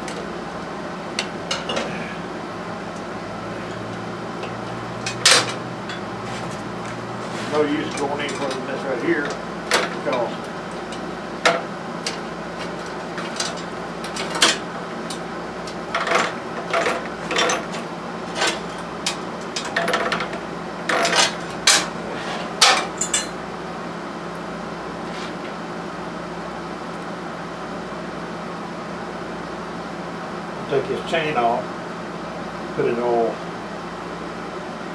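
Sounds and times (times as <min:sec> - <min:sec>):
metal tools clinking and knocking: 0:00.0 - 0:00.3, 0:01.2 - 0:02.0, 0:03.0 - 0:23.4
steady low hum: 0:00.0 - 0:25.4.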